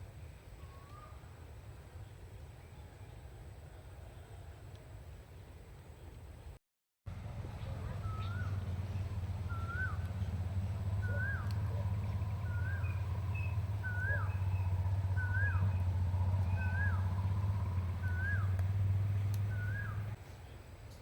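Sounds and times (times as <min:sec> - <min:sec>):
steady low rumble: 0:07.1 - 0:20.2
bird whistled note: 0:09.5 - 0:10.0, 0:11.0 - 0:11.7, 0:12.4 - 0:15.7, 0:19.5 - 0:20.0.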